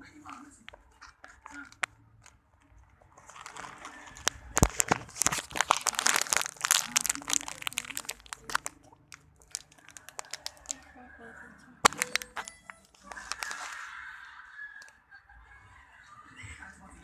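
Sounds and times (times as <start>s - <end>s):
plastic packaging crinkling: 0.6s - 10.9s, 11.8s - 14.0s.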